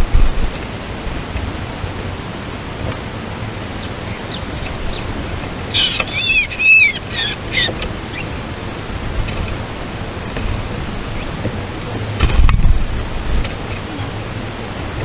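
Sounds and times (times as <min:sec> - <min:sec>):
steady hiss: 0:00.0 - 0:15.0
small bird chirping: 0:03.8 - 0:05.1, 0:05.7 - 0:08.3.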